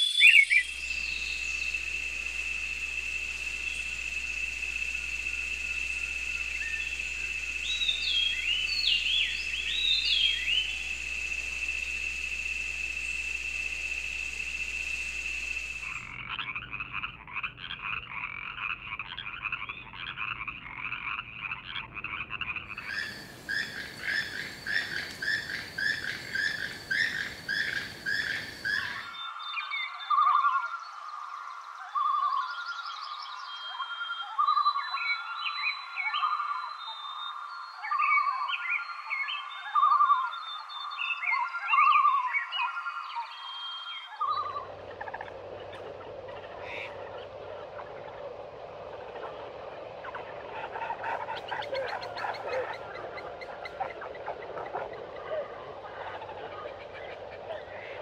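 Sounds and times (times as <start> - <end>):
bird chirps: 0.0 - 12.1, 13.0 - 30.8
high insect drone: 0.0 - 16.9, 22.6 - 29.8, 44.1 - 58.0
frogs calling in pulsed trains: 0.0 - 58.0
higher faster frog chorus: 0.6 - 29.1, 44.3 - 58.0.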